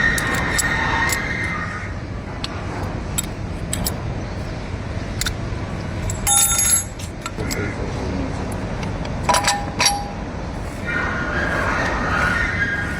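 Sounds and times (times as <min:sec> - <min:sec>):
metallic clicks of tools: 0:00.0 - 0:01.6, 0:02.4 - 0:04.0, 0:05.1 - 0:05.4, 0:06.0 - 0:07.7, 0:08.5 - 0:10.2
loud ringing metal clink: 0:06.0 - 0:07.7, 0:09.3 - 0:10.3.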